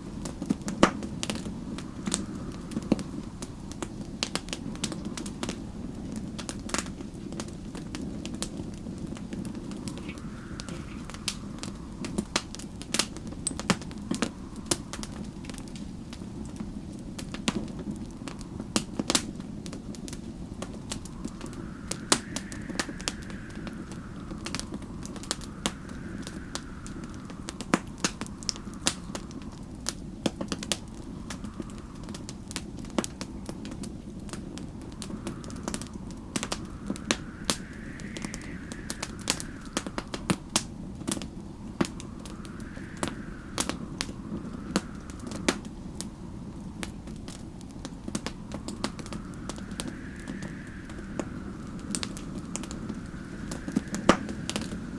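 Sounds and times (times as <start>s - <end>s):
wind howling: 0.0s - 54.9s
wood fire crackling and popping: 0.0s - 54.9s.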